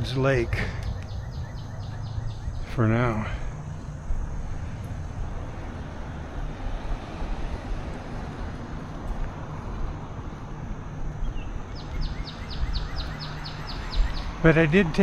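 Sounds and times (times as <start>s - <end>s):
bird trilling: 0.0s - 4.0s, 11.2s - 15.0s
bicycle rolling on trail: 0.0s - 15.0s
wind on microphone: 0.0s - 15.0s.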